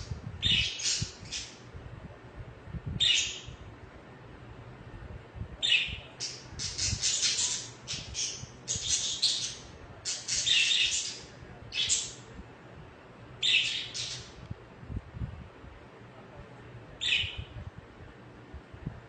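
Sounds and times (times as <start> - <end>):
budgerigars chirping and chattering: 0.4 - 1.6, 3.0 - 3.5, 5.6 - 12.2, 13.4 - 14.3, 17.0 - 17.4.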